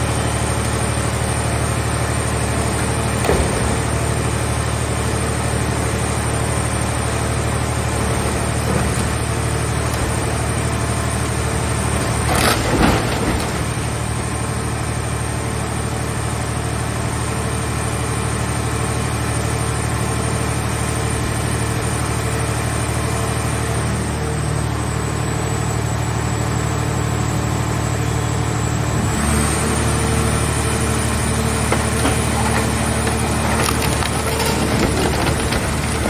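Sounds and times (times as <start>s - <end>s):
hydraulic baler droning: 0.0s - 36.0s
metal crackling and snapping: 31.6s - 36.0s.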